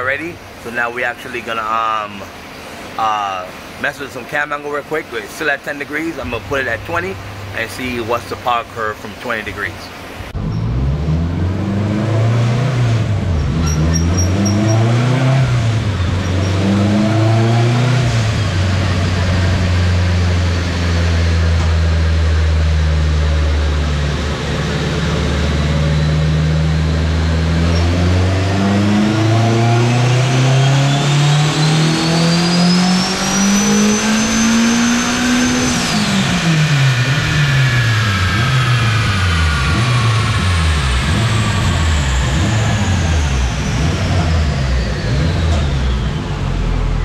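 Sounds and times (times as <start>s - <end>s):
turbo high whine: 5.8s - 47.0s
car engine revving on dyno: 10.1s - 47.0s.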